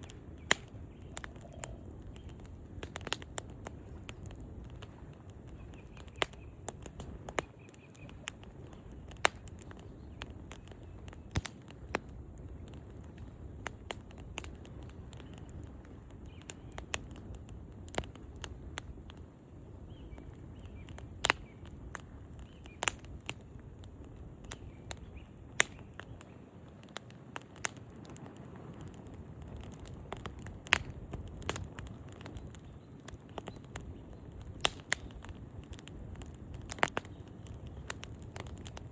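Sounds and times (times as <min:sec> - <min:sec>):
rush of flames: 0:00.0 - 0:38.9
wood fire crackling and popping: 0:00.0 - 0:38.9.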